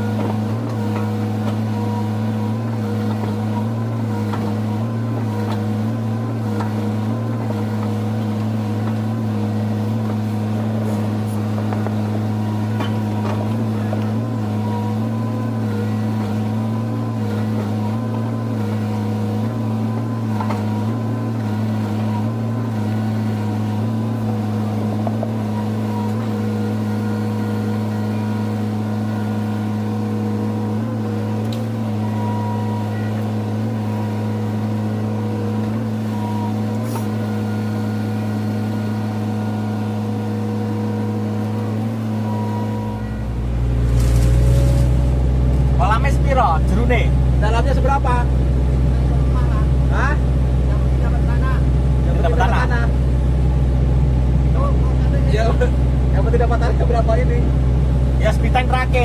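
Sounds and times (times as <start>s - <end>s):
diesel engine humming: 0.0s - 59.0s.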